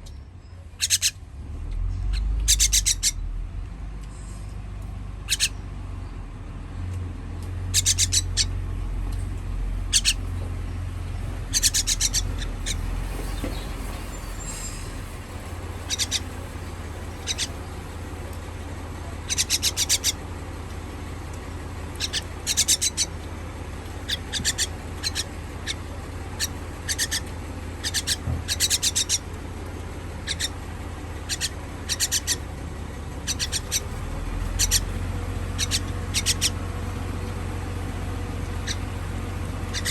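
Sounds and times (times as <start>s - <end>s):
baby bird chirping: 0.0s - 1.2s, 2.0s - 3.3s, 5.2s - 5.6s, 7.7s - 8.6s, 9.8s - 18.2s, 19.2s - 20.2s, 21.9s - 23.2s, 23.9s - 29.4s, 30.2s - 30.6s, 31.2s - 32.5s, 33.2s - 36.6s, 38.4s - 39.0s, 39.6s - 39.9s
steady low hum: 0.0s - 39.9s.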